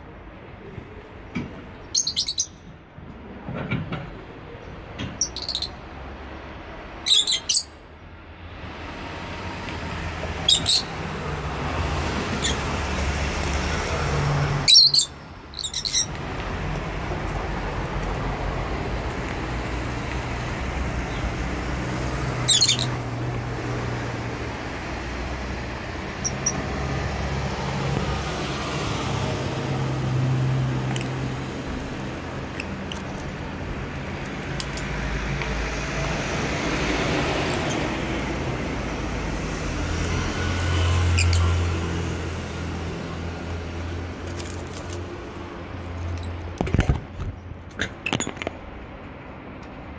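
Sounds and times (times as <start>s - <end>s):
birds chirping shrilly: 1.8s - 2.7s, 5.2s - 5.8s, 7.0s - 7.8s, 10.4s - 11.1s, 12.2s - 12.9s, 14.6s - 16.2s, 22.3s - 23.0s, 26.1s - 26.7s, 41.0s - 41.6s.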